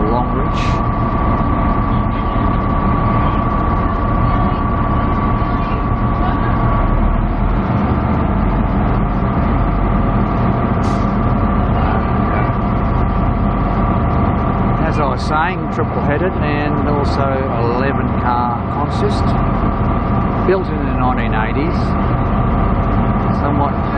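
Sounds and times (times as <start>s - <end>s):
locomotive engine whine: 0.0s - 23.9s
locomotive low hum: 0.0s - 23.9s
short hiss: 10.8s - 11.2s.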